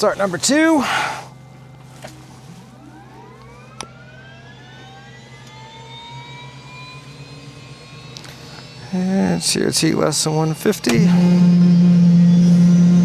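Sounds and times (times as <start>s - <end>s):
steady low hum: 0.0s - 13.0s
helicopter turbine spooling up: 2.7s - 13.0s.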